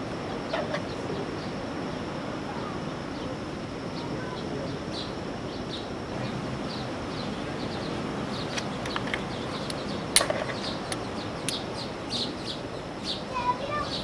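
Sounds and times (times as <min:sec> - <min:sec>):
small birds chirping: 0:00.0 - 0:14.0
sharp clicks: 0:08.5 - 0:11.6.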